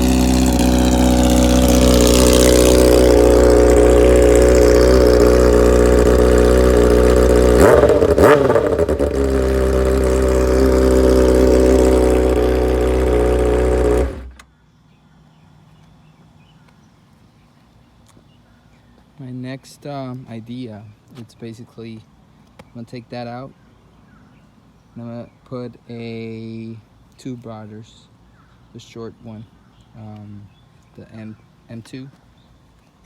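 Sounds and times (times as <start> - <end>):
motorcycle engine idling: 0.0 - 14.4.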